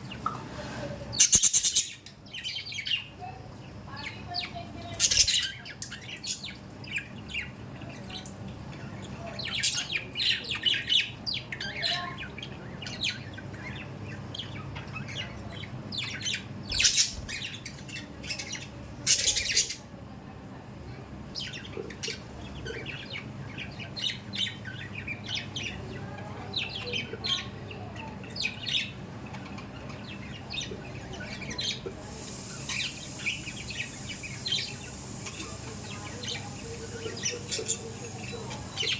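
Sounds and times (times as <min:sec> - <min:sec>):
budgerigars chirping and chattering: 0:00.0 - 0:19.9, 0:21.2 - 0:38.9.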